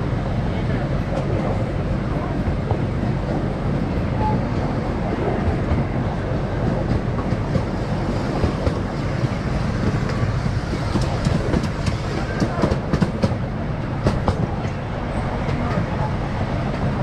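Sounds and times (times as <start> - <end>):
small train rumbling: 0.0 - 17.0
wheels clicking on rails: 6.6 - 17.0.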